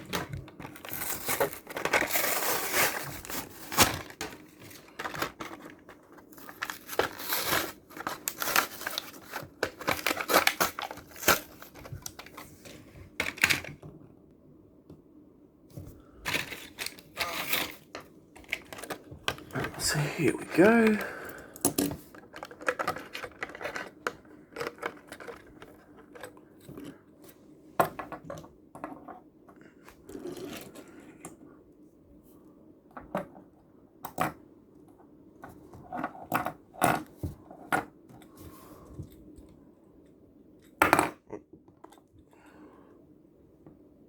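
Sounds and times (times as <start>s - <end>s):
plastic packaging tearing: 0.7s - 12.4s, 16.3s - 19.0s.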